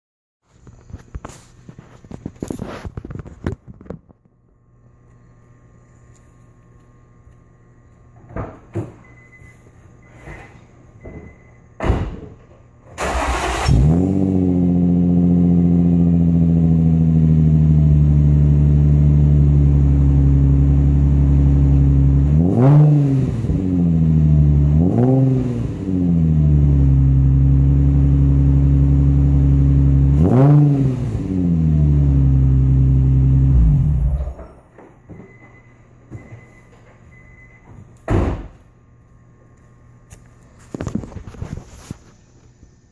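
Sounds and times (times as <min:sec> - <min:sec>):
engine cranking and starting: 0:13.0 - 0:14.2
engine revving: 0:13.0 - 0:18.2, 0:22.0 - 0:34.4.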